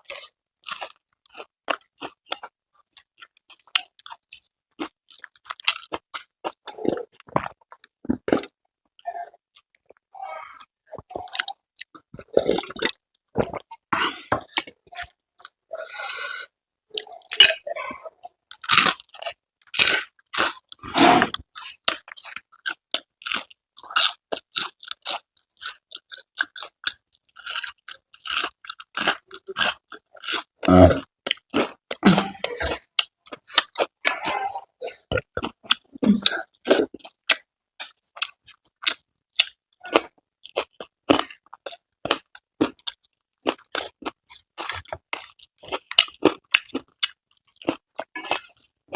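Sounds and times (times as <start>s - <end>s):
person chewing crisp food: 0.0s - 48.9s
wet mouth sounds: 30.4s - 40.2s.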